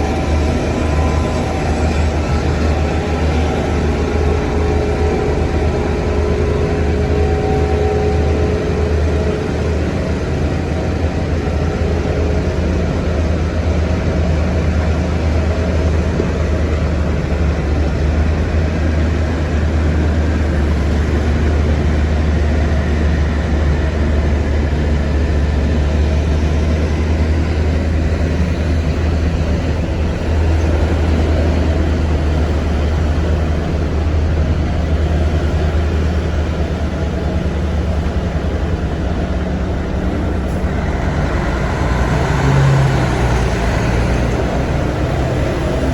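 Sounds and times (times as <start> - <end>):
heavy machinery engine droning: 0.0 - 45.9.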